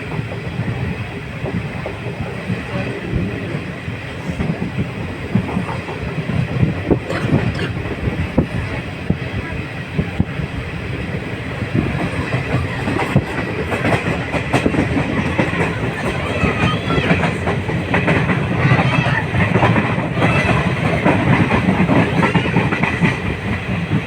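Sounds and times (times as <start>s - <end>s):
train rumbling along track: 0.0s - 24.0s
wheels clicking over rails: 11.4s - 24.0s.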